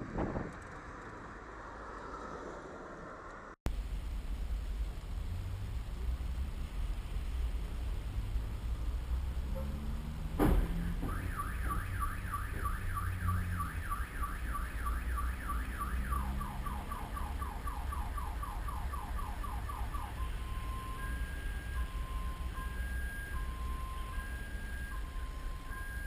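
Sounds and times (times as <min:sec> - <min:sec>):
engine and road rumble: 0:00.0 - 0:26.0
sharp bang: 0:10.4 - 0:11.8
car alarm whooping and chirping: 0:10.7 - 0:26.0.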